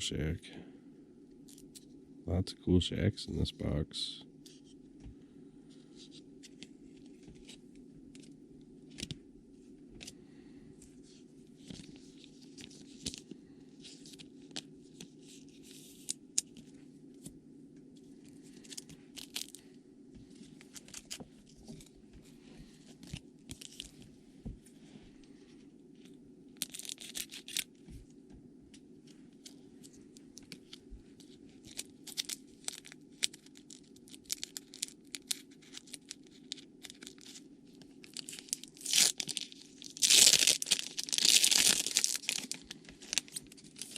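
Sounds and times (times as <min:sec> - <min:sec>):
low steady hum: 0:00.0 - 0:43.9
card pack wrappers crinkling: 0:18.5 - 0:19.6, 0:22.9 - 0:24.0, 0:26.6 - 0:27.8, 0:29.4 - 0:43.9.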